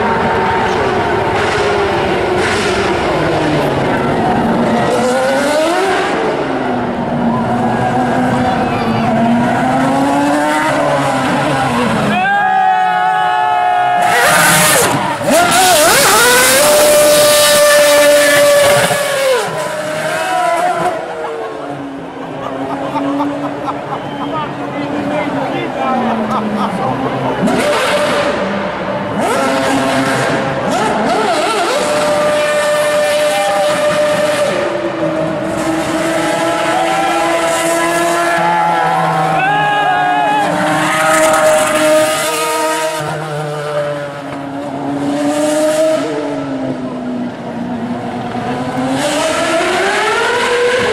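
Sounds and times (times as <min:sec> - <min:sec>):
racing car engine at high revs: 0:00.0 - 0:12.2, 0:13.9 - 0:50.9.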